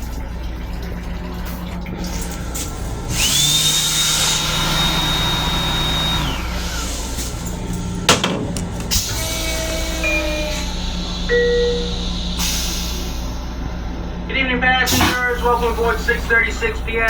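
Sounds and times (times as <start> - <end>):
electric motor whining with air rush: 2.8 - 11.3
knock: 8.1 - 8.9.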